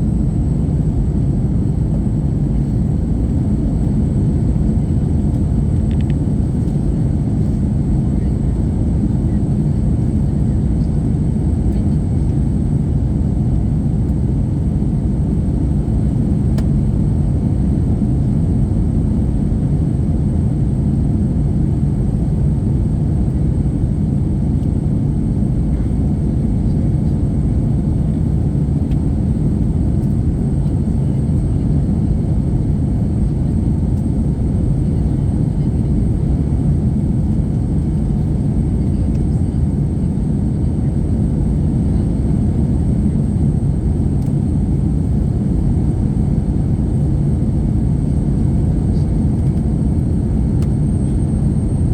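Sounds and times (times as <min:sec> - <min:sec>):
jet engine cabin rumble: 0:00.0 - 0:51.9.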